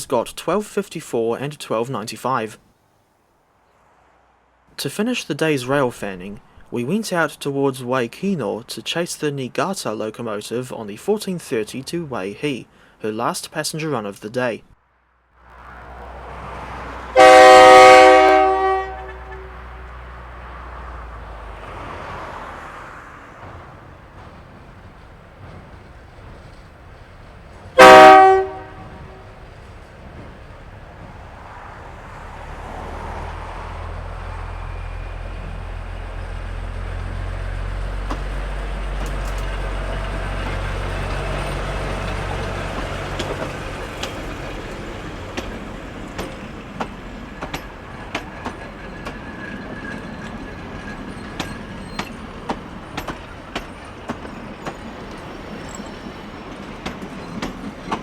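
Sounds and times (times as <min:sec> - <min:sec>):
locomotive engine drone: 0:15.4 - 0:58.0
train wheels clicking on rail joints: 0:15.6 - 0:58.0
locomotive horn blast: 0:16.9 - 0:20.8, 0:27.8 - 0:29.4.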